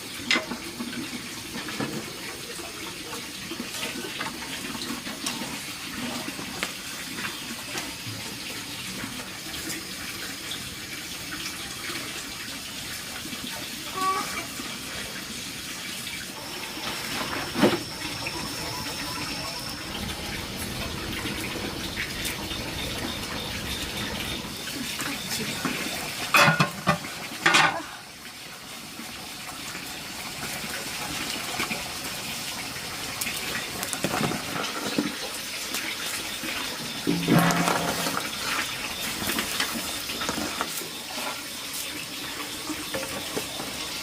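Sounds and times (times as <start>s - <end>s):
running water: 0.0s - 44.0s.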